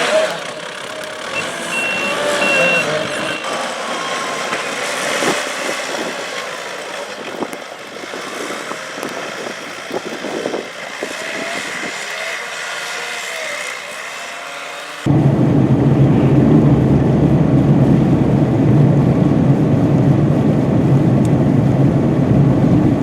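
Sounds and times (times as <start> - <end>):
truck engines running: 0.0 - 23.0
reversing beep: 1.4 - 4.2.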